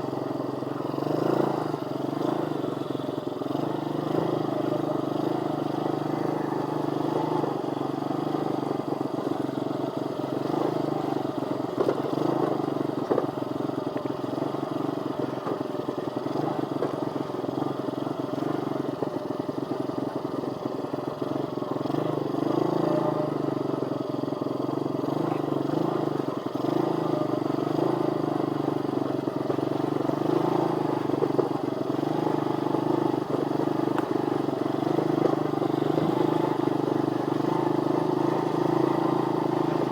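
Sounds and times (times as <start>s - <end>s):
pit bike engine running: 0.0s - 39.9s.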